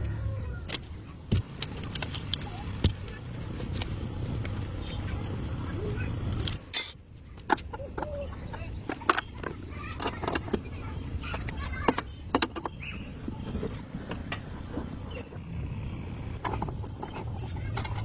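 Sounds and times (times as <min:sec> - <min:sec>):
metal tools clinking: 0:06.4 - 0:07.0, 0:16.4 - 0:17.4.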